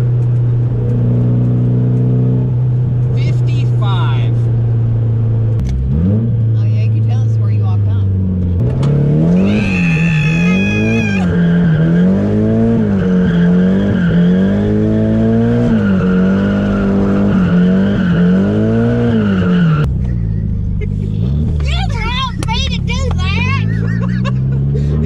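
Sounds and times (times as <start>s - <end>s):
car engine revving: 0.0s - 25.0s
tires squealing: 9.2s - 20.2s.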